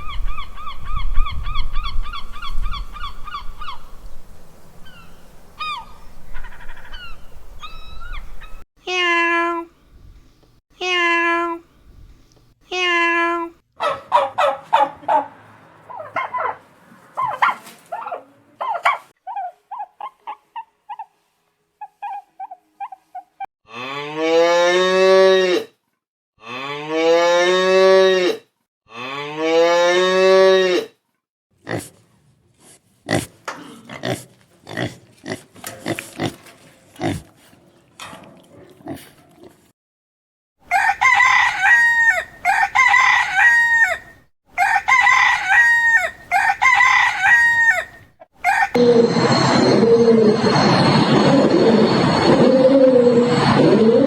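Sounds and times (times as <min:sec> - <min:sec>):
animal calls: 0:13.8 - 0:21.1, 0:46.0 - 0:50.5
rooster crowing: 0:40.6 - 0:49.0.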